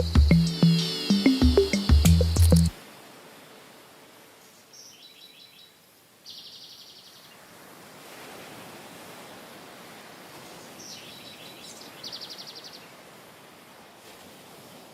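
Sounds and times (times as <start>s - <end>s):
music track: 0.0s - 2.8s
low background hiss: 0.0s - 7.5s.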